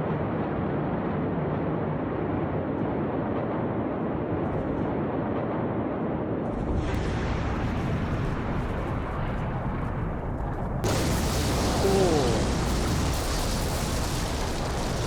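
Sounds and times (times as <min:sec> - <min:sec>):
deep explosion rumble: 0:06.6 - 0:15.0.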